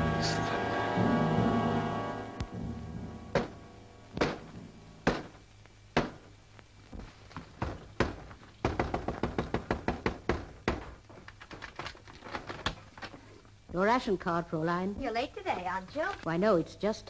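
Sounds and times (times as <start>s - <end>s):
sharp knocks: 2.5s - 5.4s, 6.0s - 6.3s, 7.0s - 11.0s.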